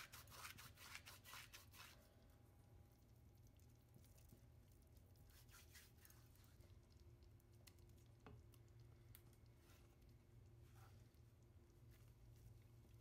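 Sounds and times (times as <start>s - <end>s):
faint low hum: 0.0s - 13.0s
soft scratchy rustles: 9.4s - 13.0s.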